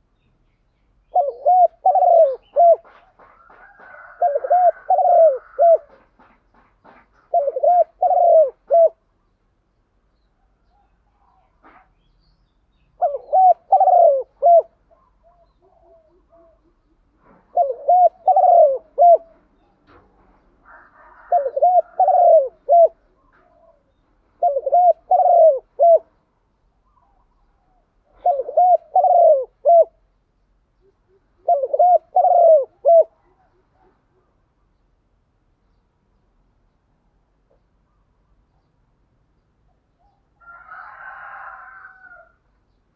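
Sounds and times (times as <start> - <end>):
dove cooing: 1.1 - 6.3, 6.9 - 9.0, 13.0 - 26.1, 26.8 - 30.0, 30.8 - 34.4.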